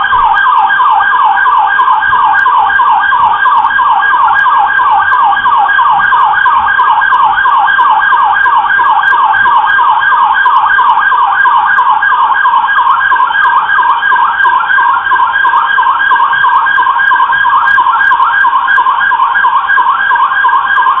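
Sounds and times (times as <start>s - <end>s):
police siren fast yelp: 0.0s - 21.0s.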